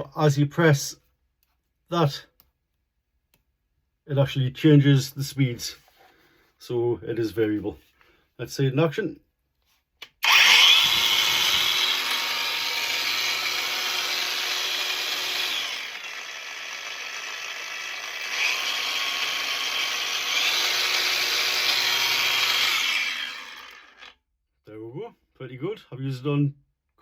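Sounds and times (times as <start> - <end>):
angle grinder whining: 10.2 - 24.2.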